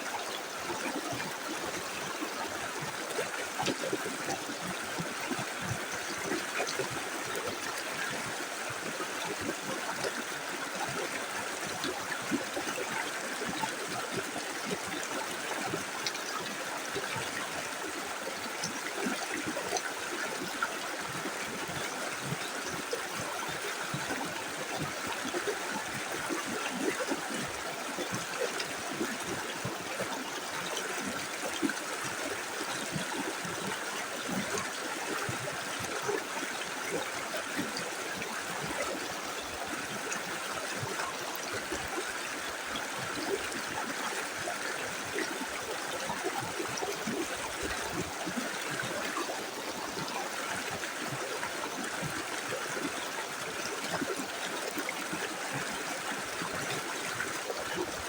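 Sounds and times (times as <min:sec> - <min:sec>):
river flowing with gurgles: 0:00.0 - 0:58.0.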